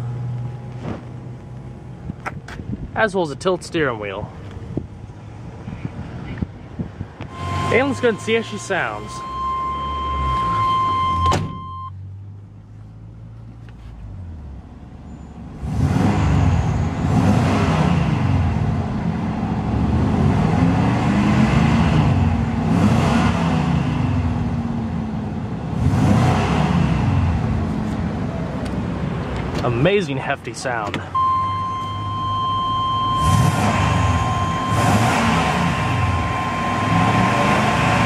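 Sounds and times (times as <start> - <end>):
truck engine starting and revving: 6.9 - 12.6, 14.1 - 30.0, 30.8 - 38.0
warning buzzer tone: 7.3 - 11.9, 31.2 - 38.0.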